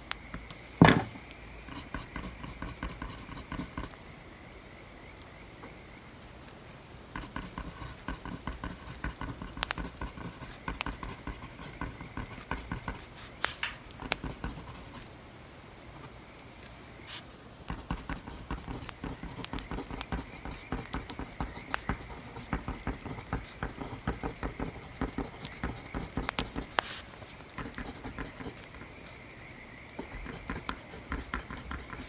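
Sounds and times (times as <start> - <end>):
writing on paper: 1.7 - 3.9, 7.2 - 15.1, 17.1 - 29.2, 29.9 - 32.0.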